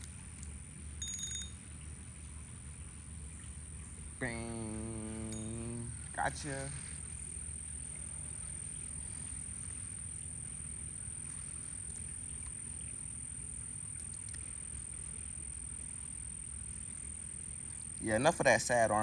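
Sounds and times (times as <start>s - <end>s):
faint ticks: 0.0s - 1.6s, 3.4s - 18.0s
high-pitched insect drone: 3.8s - 19.0s.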